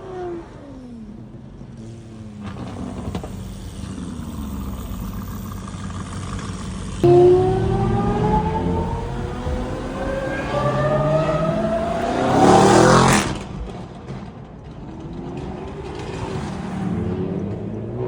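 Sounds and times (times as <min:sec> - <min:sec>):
car accelerating past: 0:01.8 - 0:14.0.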